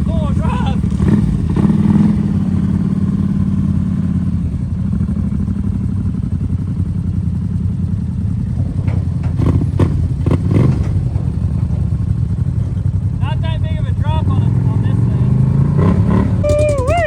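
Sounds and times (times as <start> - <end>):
off-road vehicle engine: 0.0 - 17.0
clattering knocks: 7.2 - 13.2.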